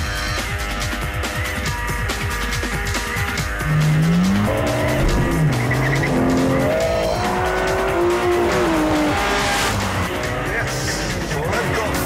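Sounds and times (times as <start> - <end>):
music: 0.0 - 12.0
car engine revving: 1.9 - 12.0
tyre noise: 3.5 - 9.1.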